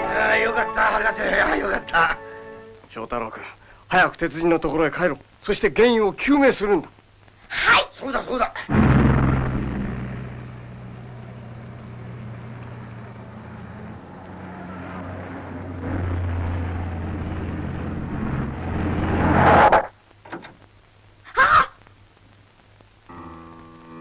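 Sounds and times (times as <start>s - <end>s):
car engine drone: 8.7s - 19.9s.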